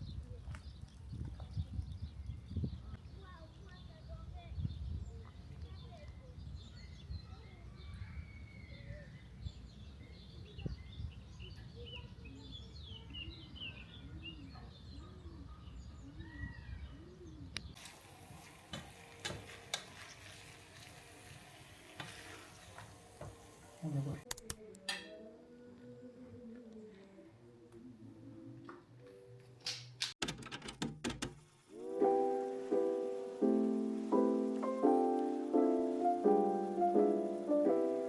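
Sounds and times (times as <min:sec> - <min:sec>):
small birds chirping and singing: 0:00.0 - 0:17.8, 0:32.0 - 0:38.0
steady hiss: 0:31.3 - 0:38.0.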